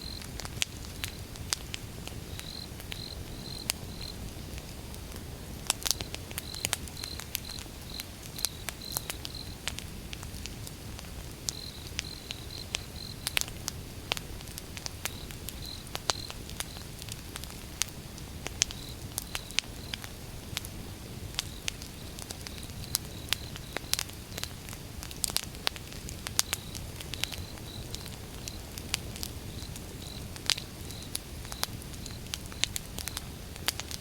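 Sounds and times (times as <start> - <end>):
insect chirping: 0.0 - 1.2, 2.2 - 4.2, 6.4 - 9.6, 11.5 - 13.3, 15.1 - 16.9, 26.4 - 28.7, 29.4 - 32.7
low rumble of flames: 0.0 - 34.0
wood fire crackling and popping: 0.0 - 34.0.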